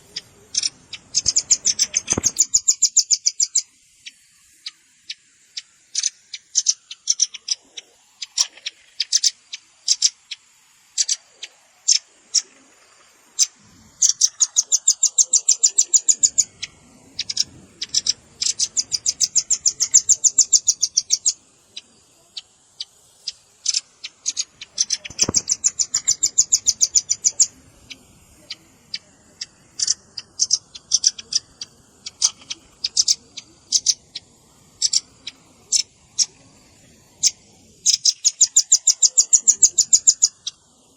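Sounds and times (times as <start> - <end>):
bird sharp high chips: 0.0 - 3.5, 23.2 - 27.9
bird rapid trills: 0.0 - 40.9.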